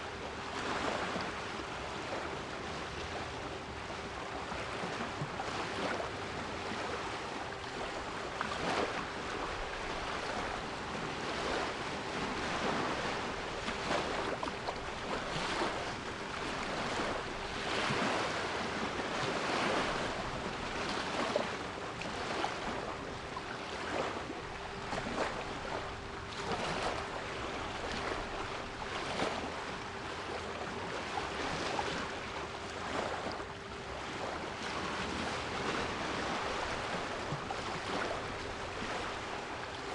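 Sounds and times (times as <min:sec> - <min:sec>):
sea waves washing: 0:06.7 - 0:39.9.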